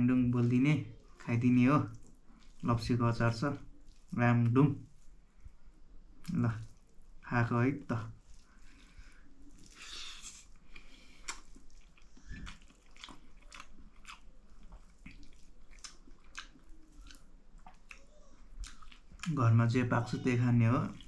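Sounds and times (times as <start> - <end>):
person chewing food: 1.9 - 2.7, 3.6 - 4.2, 8.1 - 19.4
wet mouth clicks and smacks: 9.6 - 19.4.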